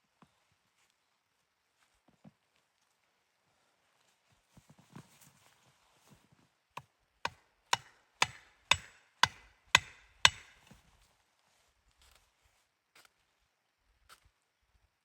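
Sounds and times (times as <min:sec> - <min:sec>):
axe chopping wood: 0:07.3 - 0:10.6.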